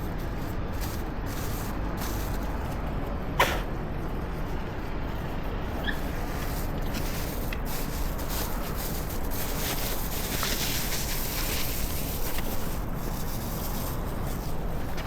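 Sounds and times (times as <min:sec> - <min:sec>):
city street low rumble: 0:00.0 - 0:15.0.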